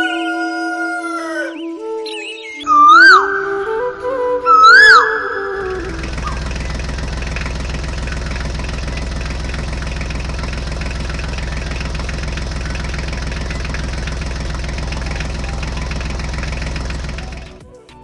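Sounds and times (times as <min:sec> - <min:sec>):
small engine knocking: 0:05.9 - 0:17.6.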